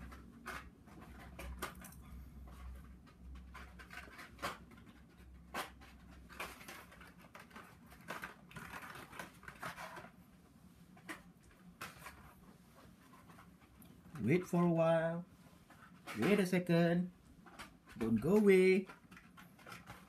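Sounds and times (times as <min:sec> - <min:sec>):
plastic packs clicking and tapping: 0:00.0 - 0:10.2, 0:10.9 - 0:12.4, 0:13.2 - 0:20.0
card and plastic rustling: 0:00.0 - 0:20.0.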